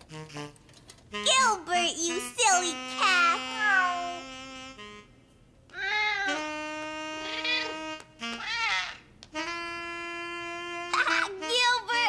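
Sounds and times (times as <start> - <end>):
background music with held notes: 0.0 - 5.4
cat meowing: 3.3 - 4.2, 5.7 - 6.5, 7.2 - 7.8, 8.4 - 9.0.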